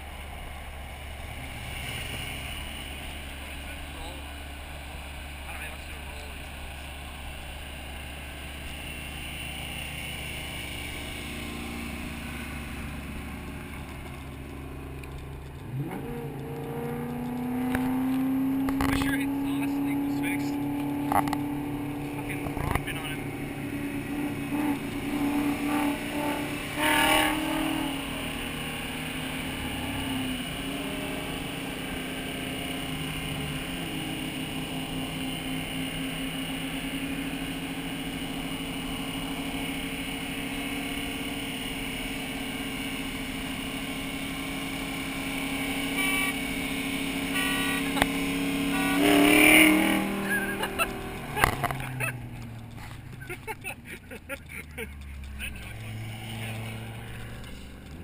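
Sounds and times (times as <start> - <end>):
car engine under load: 0.0 - 58.0
loud engine bursts: 22.1 - 58.0.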